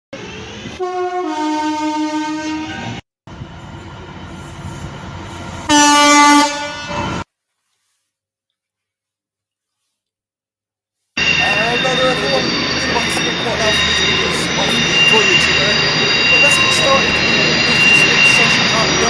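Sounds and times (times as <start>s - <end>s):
train horn: 0.7s - 3.0s, 5.7s - 7.2s.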